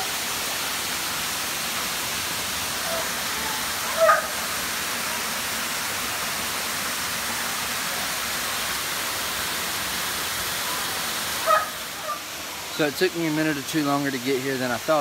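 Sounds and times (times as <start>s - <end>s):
waterfall rushing into pool: 0.0s - 15.0s.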